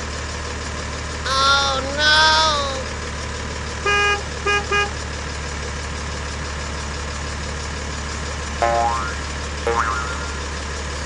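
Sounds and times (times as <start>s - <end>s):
low engine-like hum: 0.0s - 11.0s
vehicle horn beeps: 3.8s - 5.0s.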